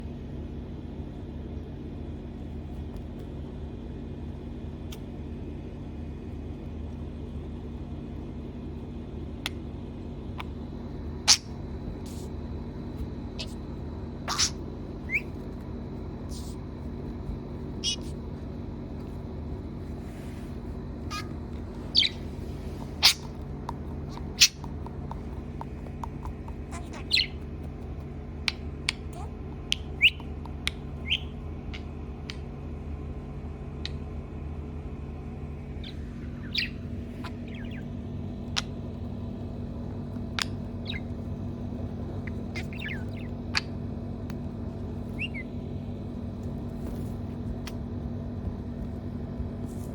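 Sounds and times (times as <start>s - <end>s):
budgerigar squawking and chirping: 11.2s - 12.3s, 13.4s - 13.6s, 14.2s - 15.3s, 17.7s - 18.2s, 21.0s - 27.5s, 28.5s - 32.4s, 35.8s - 37.9s, 40.4s - 41.1s, 42.2s - 43.8s, 45.1s - 45.5s.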